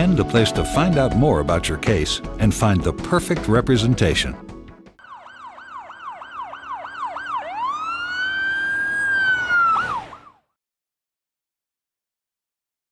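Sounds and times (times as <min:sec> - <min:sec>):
emergency vehicle siren: 0:05.0 - 0:10.5.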